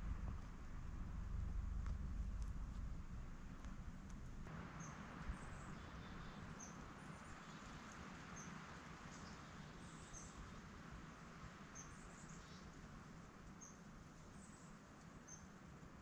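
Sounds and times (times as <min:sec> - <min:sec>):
woodland background hiss: 0:00.0 - 0:16.0
small bird chirping: 0:13.6 - 0:15.5.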